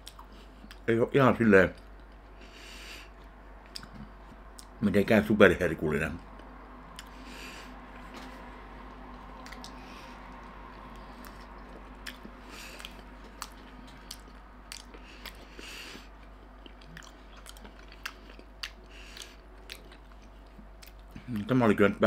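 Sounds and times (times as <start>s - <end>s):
person chewing: 0.0s - 0.8s, 3.0s - 4.8s, 6.4s - 8.5s, 9.1s - 21.5s
faint steady hum: 0.0s - 22.0s
wet mouth smacking: 6.9s - 7.2s, 10.4s - 15.6s.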